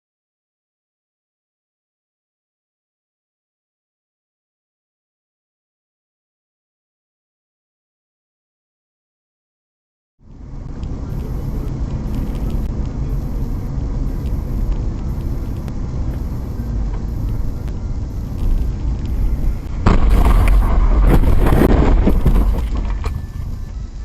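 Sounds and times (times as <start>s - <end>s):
car driving rumble: 10.2s - 24.0s
loud rough noise: 10.3s - 24.0s.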